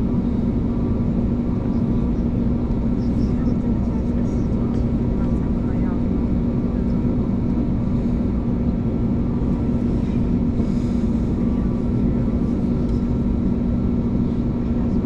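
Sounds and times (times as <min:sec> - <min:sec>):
aircraft engines low hum: 0:00.0 - 0:15.0.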